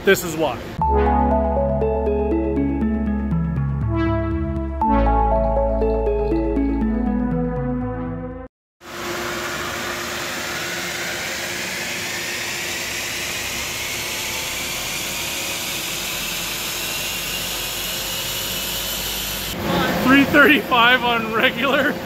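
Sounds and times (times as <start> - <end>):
engine at full throttle: 9.3 - 19.6.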